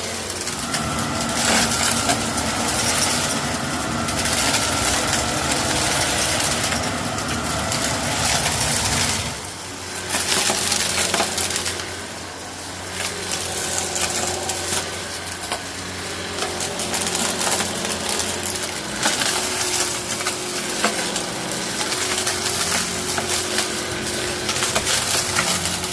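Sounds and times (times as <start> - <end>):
vacuum cleaner motor hum: 0.0 - 25.9
rocks rattling in vacuum: 0.2 - 9.6.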